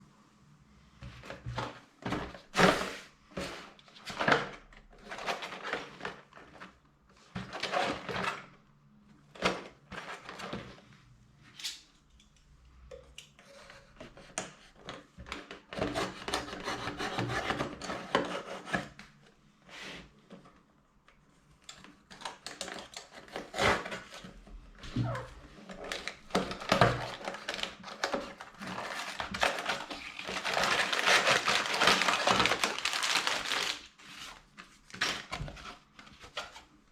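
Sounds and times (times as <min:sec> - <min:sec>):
packaging rustling: 0:25.0 - 0:36.7.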